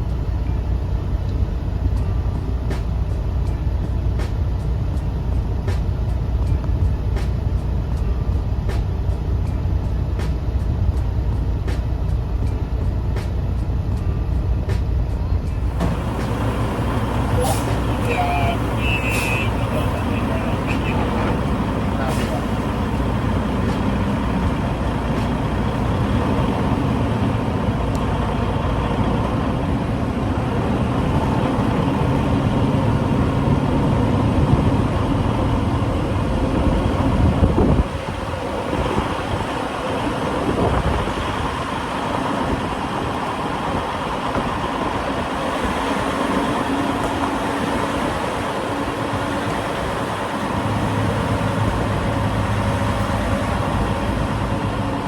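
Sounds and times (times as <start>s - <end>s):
diesel truck engine rumbling: 0.0s - 55.0s.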